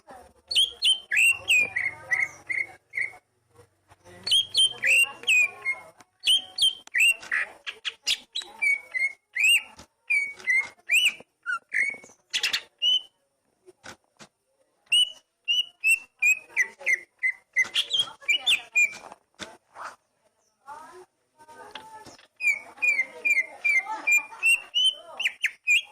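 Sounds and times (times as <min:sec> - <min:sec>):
bird singing whistled notes: 0:00.5 - 0:03.2, 0:04.2 - 0:13.2, 0:14.9 - 0:19.1, 0:22.3 - 0:25.9.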